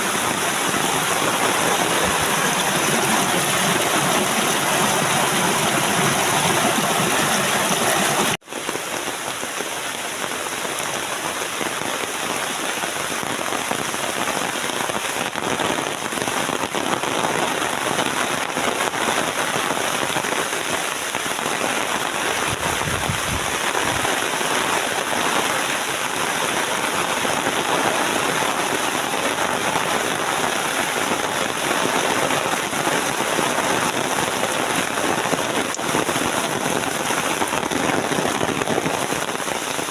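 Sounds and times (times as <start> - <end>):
raindrop patter: 0.0 - 39.9
steady rain hiss: 0.0 - 39.9.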